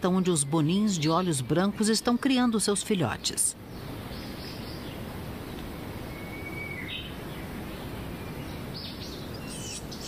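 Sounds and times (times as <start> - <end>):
steady forest hiss: 0.0 - 10.0
faint bird call: 6.1 - 7.2.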